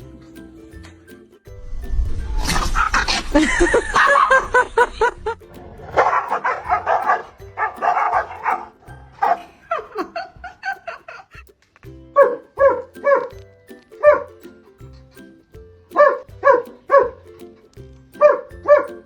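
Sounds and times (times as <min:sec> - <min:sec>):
background music: 0:00.0 - 0:19.0
dog barking: 0:03.8 - 0:04.5, 0:05.9 - 0:09.5, 0:12.2 - 0:13.3, 0:16.0 - 0:17.2, 0:18.2 - 0:18.9.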